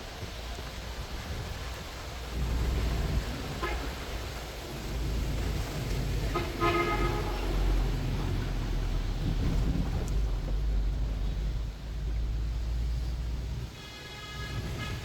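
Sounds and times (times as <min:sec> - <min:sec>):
street traffic rumble: 0:00.0 - 0:15.0
vehicle horn honking: 0:03.5 - 0:04.2, 0:06.3 - 0:07.9, 0:13.8 - 0:15.0.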